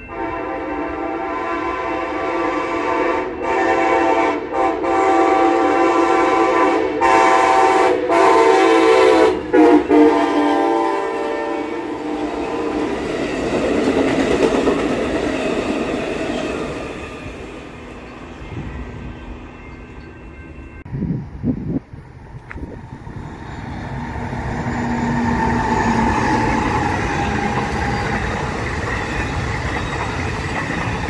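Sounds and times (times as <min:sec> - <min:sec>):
train air horn blasts: 0:00.0 - 0:13.0
train cars rumbling over rails: 0:00.0 - 0:31.0.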